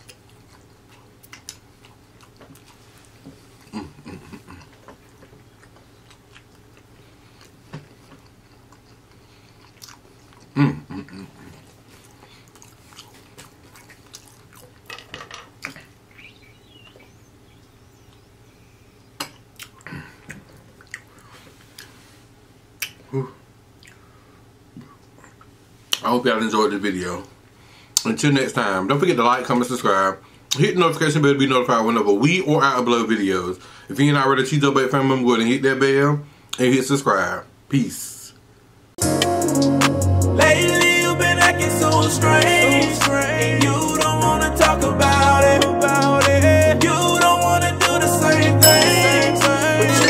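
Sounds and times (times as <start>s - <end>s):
mouth clicks and smacks: 0.0s - 2.7s, 19.2s - 21.9s, 22.8s - 23.1s, 23.8s - 24.0s
person chewing food: 0.0s - 14.9s, 19.1s - 22.0s, 23.7s - 24.2s
faint steady hum: 0.0s - 39.4s
low throat sound: 3.6s - 4.8s, 10.5s - 11.6s.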